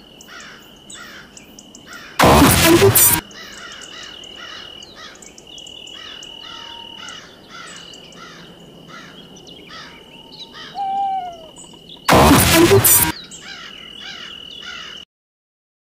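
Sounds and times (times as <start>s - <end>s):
short falling call: 10.7s - 11.6s
rhythmic chirping: 10.8s - 11.5s.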